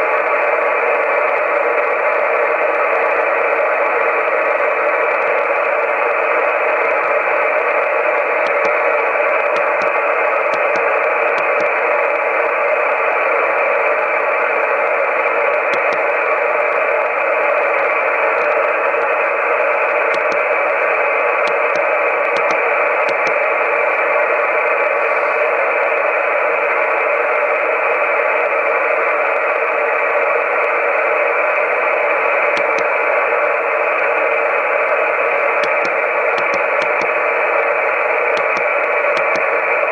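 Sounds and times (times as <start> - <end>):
radio receiver hiss: 3.4 - 25.6, 30.6 - 39.9.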